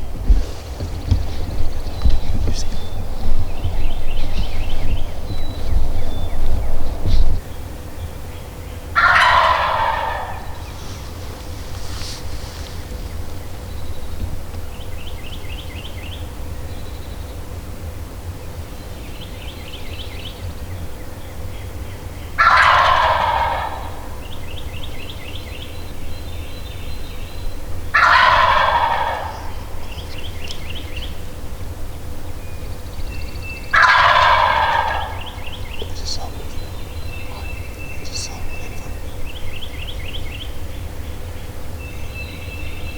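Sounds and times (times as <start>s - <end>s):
songbird trills: 0.0s - 17.6s, 18.3s - 42.9s
turkey gobbling: 9.0s - 13.7s, 22.4s - 24.4s, 27.9s - 31.4s, 33.6s - 40.0s.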